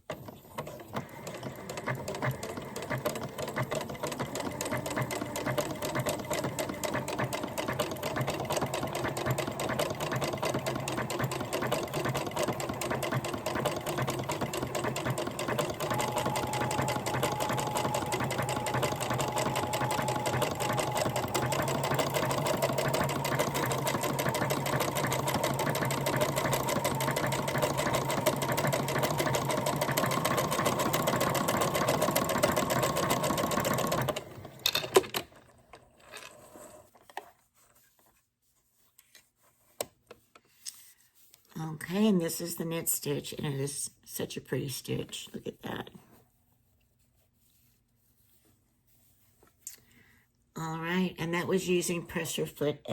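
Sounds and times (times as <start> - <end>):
sewing machine motor hum: 0.0 - 35.5
sewing machine needle clatter: 0.0 - 36.4.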